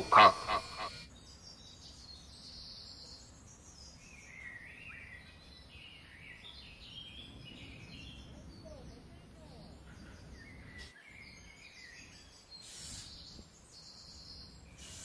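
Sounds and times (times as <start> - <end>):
faint birdsong chirps: 0.0 - 15.0
low outdoor background rumble: 5.1 - 10.8.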